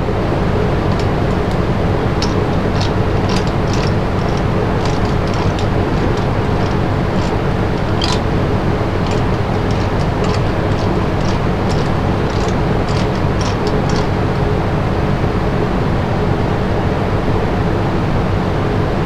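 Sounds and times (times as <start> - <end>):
wood lathe humming: 0.8 - 14.2
tool scratching spinning wood: 0.8 - 14.3.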